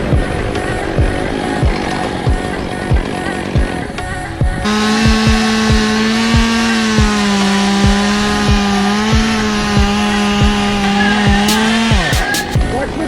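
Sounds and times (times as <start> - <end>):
music with kick drum beat: 1.0 - 3.8, 4.4 - 7.2, 11.3 - 12.7
chainsaw cutting wood: 4.6 - 12.6.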